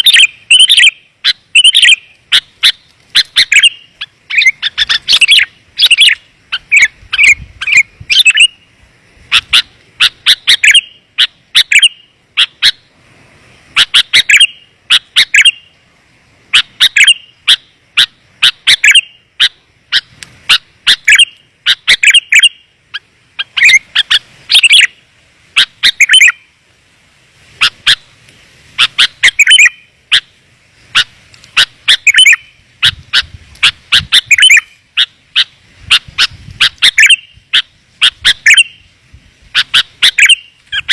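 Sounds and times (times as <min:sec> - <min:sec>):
bulbul bird chirping calls: 0:00.0 - 0:08.7, 0:09.3 - 0:12.9, 0:13.8 - 0:15.8, 0:16.5 - 0:25.0, 0:25.6 - 0:26.5, 0:28.8 - 0:38.9, 0:39.5 - 0:40.9.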